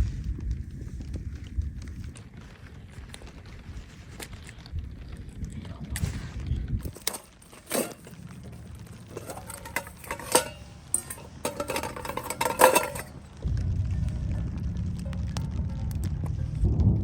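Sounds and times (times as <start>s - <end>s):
low rumble: 0.0s - 17.0s
metal gear clinking and rattling: 6.8s - 13.2s.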